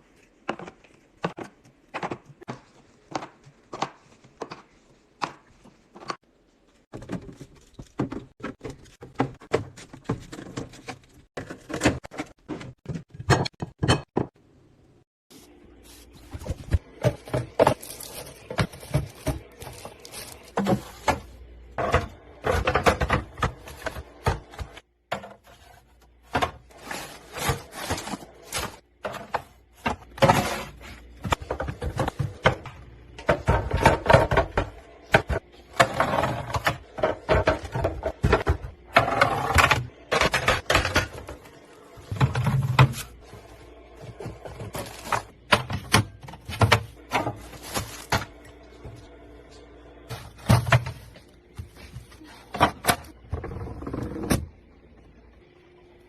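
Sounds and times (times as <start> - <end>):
containers and packets handled: 15.4 - 32.7, 39.9 - 53.2.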